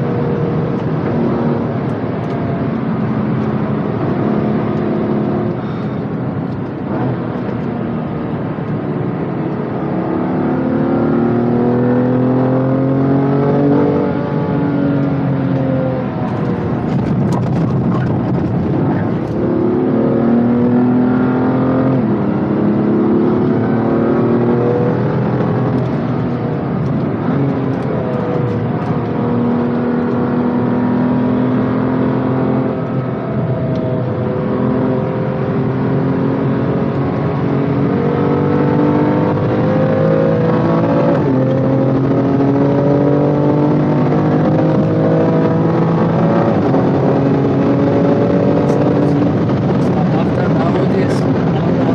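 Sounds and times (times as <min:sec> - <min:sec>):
car engine revving at full load: 0:00.0 - 0:51.9
gear shift: 0:15.0 - 0:19.6, 0:25.2 - 0:30.4.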